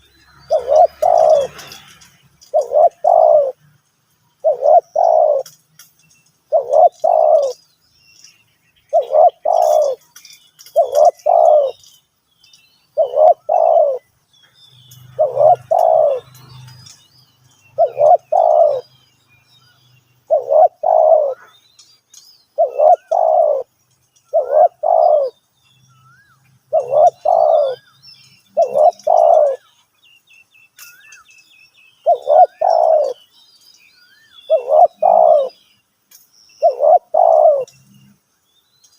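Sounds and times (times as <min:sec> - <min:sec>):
faint small bird chirps: 0:00.0 - 0:38.9
dove cooing: 0:00.4 - 0:03.6, 0:04.4 - 0:05.9, 0:06.5 - 0:07.6, 0:08.9 - 0:11.9, 0:13.0 - 0:14.1, 0:15.1 - 0:17.0, 0:17.7 - 0:18.9, 0:20.3 - 0:21.6, 0:22.6 - 0:23.7, 0:24.3 - 0:25.4, 0:26.7 - 0:27.8, 0:28.5 - 0:29.7, 0:32.0 - 0:33.3, 0:34.5 - 0:35.6, 0:36.6 - 0:38.1.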